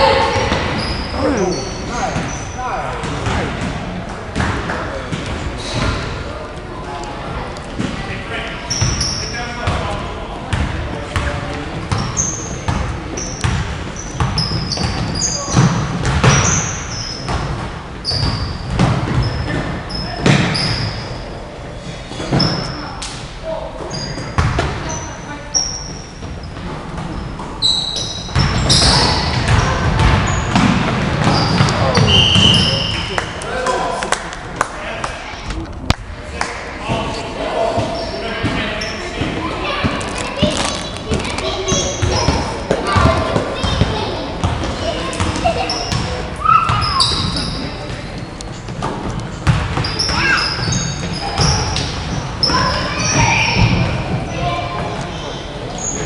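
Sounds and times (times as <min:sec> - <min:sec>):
voices in background: 0:00.0 - 0:17.4, 0:19.0 - 0:56.0
crowd noise: 0:00.0 - 0:56.0
sneakers squeaking on court: 0:00.2 - 0:02.6, 0:08.6 - 0:09.8, 0:10.5 - 0:21.2, 0:23.9 - 0:33.1, 0:37.7 - 0:56.0
basketball bouncing: 0:48.7 - 0:50.2.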